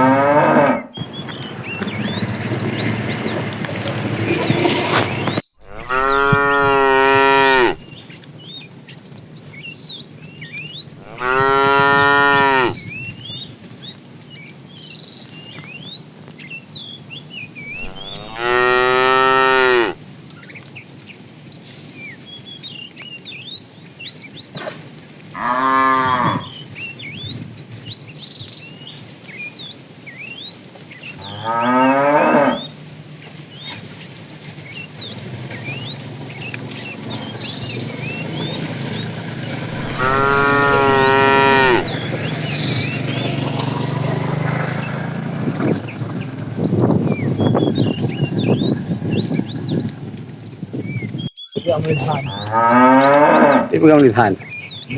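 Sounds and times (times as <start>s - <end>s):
cow mooing: 0.0s - 1.0s, 5.7s - 7.8s, 11.0s - 12.8s, 17.8s - 20.0s, 25.4s - 26.6s, 31.2s - 32.7s, 39.5s - 42.2s, 52.2s - 53.8s.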